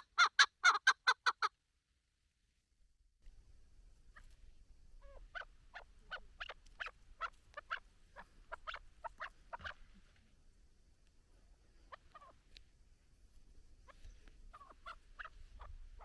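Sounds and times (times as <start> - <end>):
partridge chuck calls: 0.0 - 1.5, 5.0 - 10.0, 11.8 - 12.5, 13.8 - 16.0.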